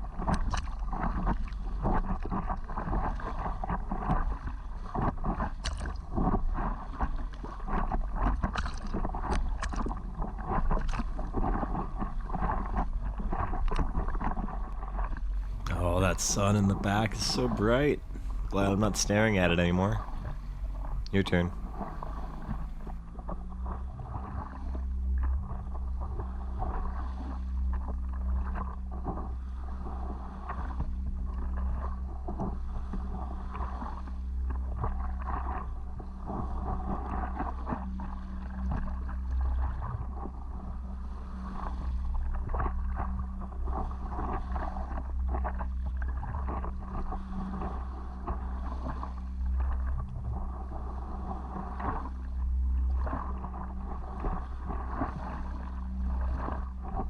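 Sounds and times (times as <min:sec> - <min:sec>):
wind rumble on microphone: 0:00.0 - 0:15.7, 0:19.9 - 0:57.0
water splashing against paddleboard: 0:00.2 - 0:15.6, 0:41.2 - 0:57.0.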